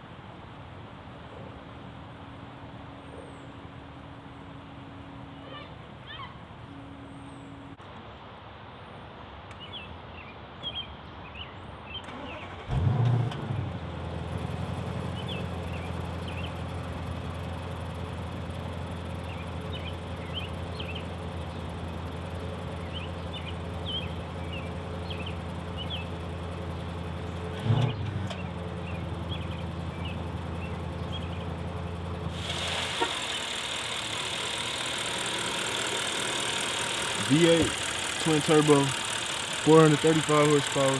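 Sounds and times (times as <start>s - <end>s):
car engine starting and idling: 12.0s - 40.9s
engine rev blip: 32.3s - 40.9s.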